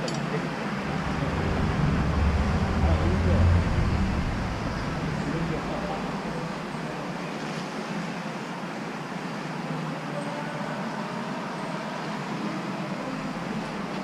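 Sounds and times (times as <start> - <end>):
excavator diesel engine running: 0.7 - 6.5.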